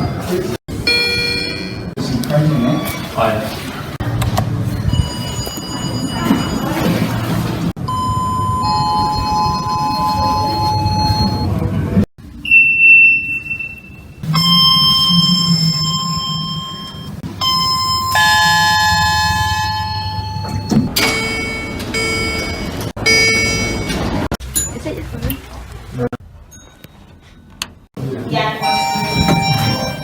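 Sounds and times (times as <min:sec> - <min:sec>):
elevator chimes: 0:00.8 - 0:03.1, 0:04.7 - 0:11.8, 0:12.4 - 0:24.3, 0:28.6 - 0:30.0
high beep: 0:07.9 - 0:11.5, 0:12.4 - 0:24.1, 0:28.6 - 0:30.0.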